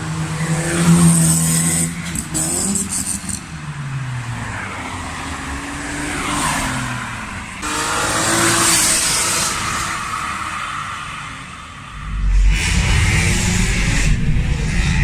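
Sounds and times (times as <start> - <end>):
loud car accelerating: 0.0 - 15.0
car engine revving: 5.4 - 15.0.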